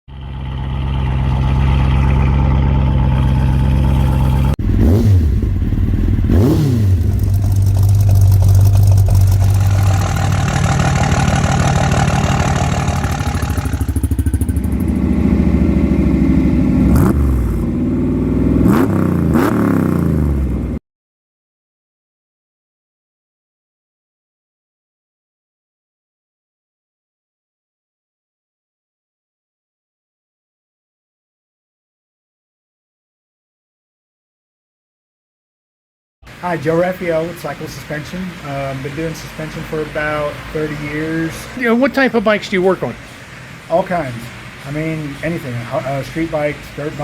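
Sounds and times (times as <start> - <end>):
motorcycle engine revving: 0.1 - 20.8.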